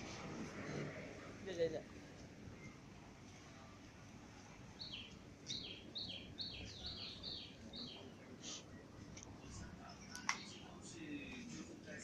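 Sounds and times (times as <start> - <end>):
faint background noise: 0.0 - 12.0
bird chirping: 4.8 - 8.2.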